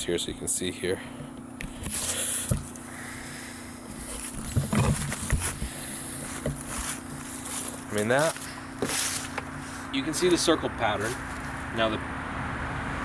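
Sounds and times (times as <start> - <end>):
engine humming: 1.0 - 13.0
close knocks and rustles: 1.2 - 2.8, 3.9 - 10.4.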